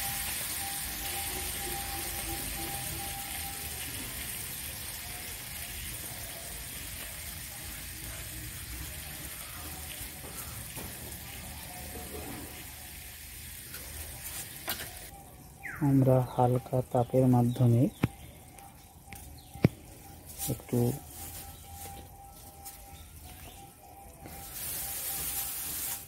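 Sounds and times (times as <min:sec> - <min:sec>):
potatoes sizzling in a pan: 0:00.0 - 0:15.1, 0:24.3 - 0:26.0.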